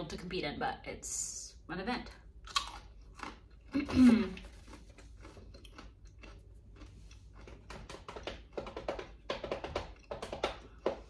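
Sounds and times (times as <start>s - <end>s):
crunchy snack chewing: 2.4s - 8.0s.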